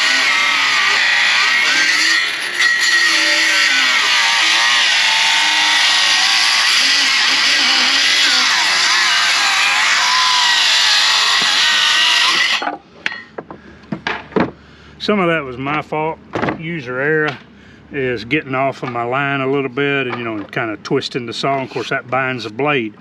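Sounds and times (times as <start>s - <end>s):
circular saw cutting wood: 0.0s - 12.6s.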